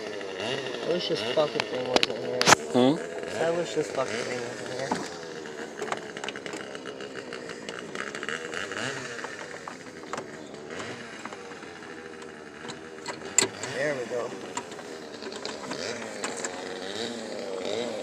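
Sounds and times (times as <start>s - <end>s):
rapid clicks: 4.2s - 18.0s
metallic clatter of car parts: 7.5s - 16.6s.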